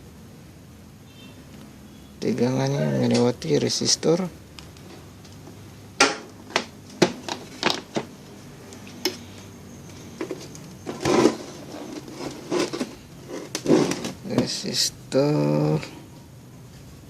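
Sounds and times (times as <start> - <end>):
scraping rustle: 10.2 - 14.2.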